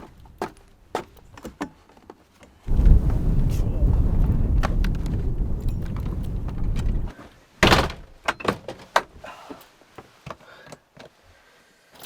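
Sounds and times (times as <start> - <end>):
low rumble: 2.7 - 7.1.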